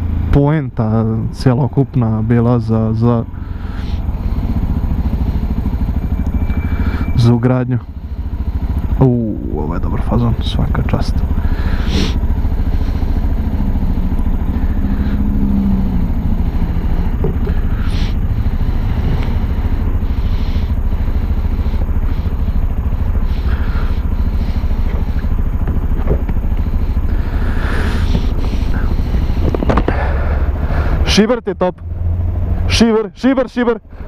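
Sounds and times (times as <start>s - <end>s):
motorcycle engine running: 0.0s - 34.0s
wind buffeting microphone: 28.1s - 30.1s.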